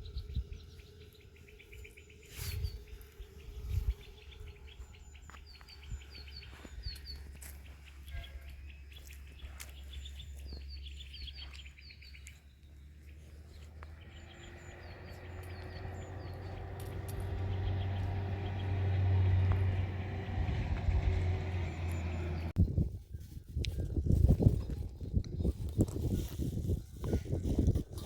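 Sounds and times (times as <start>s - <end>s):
low rumble: 0.0s - 9.4s, 13.0s - 22.9s
small birds chirping: 0.0s - 28.0s.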